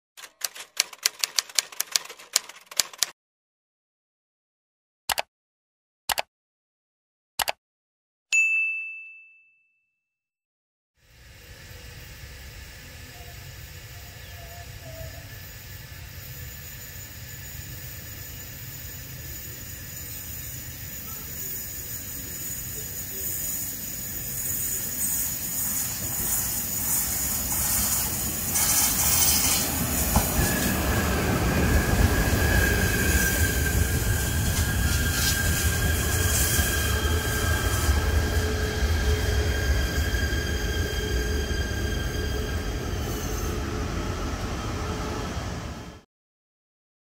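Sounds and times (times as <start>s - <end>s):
hiss: 11.0s - 30.8s, 32.2s - 38.0s
electric train approaching: 11.0s - 46.0s.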